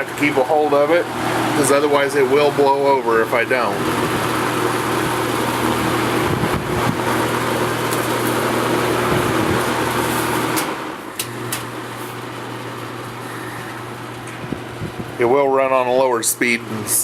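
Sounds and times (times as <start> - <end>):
box fan motor humming: 0.0 - 17.0
rush of air from fan: 3.6 - 12.3, 14.3 - 15.5
fan switch clicks: 10.5 - 11.8.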